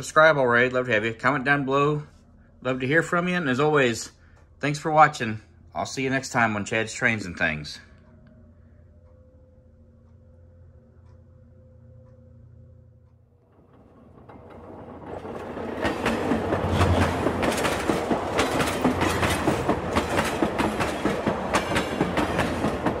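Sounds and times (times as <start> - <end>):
train wheels clattering over rails: 13.6 - 23.0.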